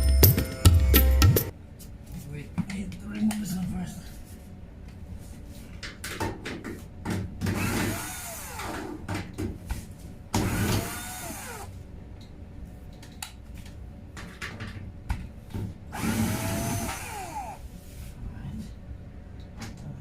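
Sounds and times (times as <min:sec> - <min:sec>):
power drill running: 0:07.6 - 0:08.8, 0:10.4 - 0:11.7, 0:15.9 - 0:17.6.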